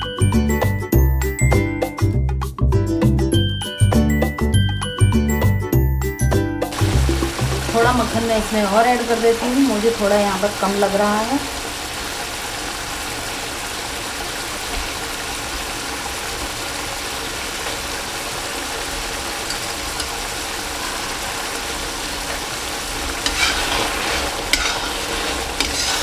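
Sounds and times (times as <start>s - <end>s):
food sizzling in a pan: 6.7s - 26.0s
metal spatula scraping pan: 23.0s - 26.0s.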